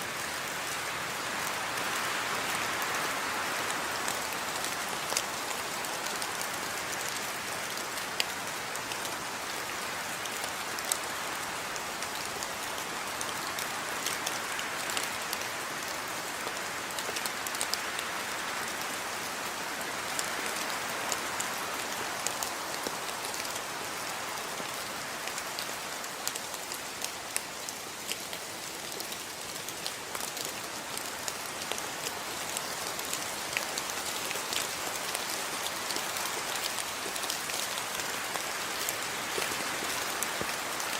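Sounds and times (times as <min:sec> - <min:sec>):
steady rain hiss: 0:00.0 - 0:40.9
raindrops pattering on a surface: 0:00.2 - 0:40.9.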